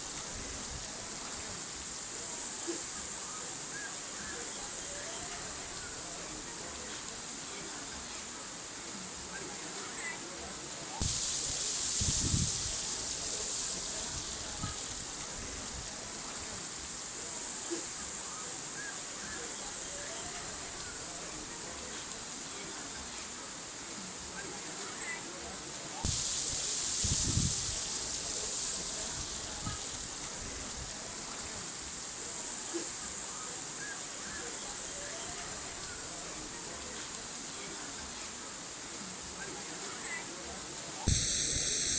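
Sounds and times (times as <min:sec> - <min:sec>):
high-pitched hiss: 0:00.0 - 0:41.9
water running and splashing: 0:00.0 - 0:41.9.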